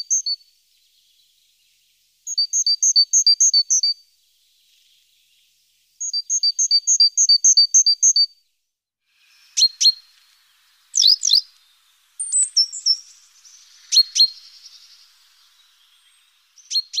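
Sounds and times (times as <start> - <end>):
bird trill: 0.0 - 0.4, 2.3 - 4.0, 6.0 - 8.3, 9.3 - 10.1, 10.9 - 11.6, 12.2 - 17.0
small birds chirping: 0.0 - 8.6, 9.2 - 17.0.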